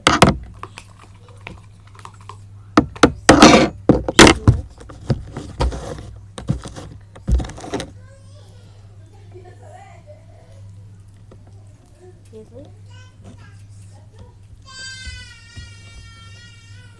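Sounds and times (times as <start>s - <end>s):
objects knocking and clicking: 0.0s - 8.0s
low steady hum: 0.0s - 16.9s
scraping or rustling: 3.2s - 8.0s.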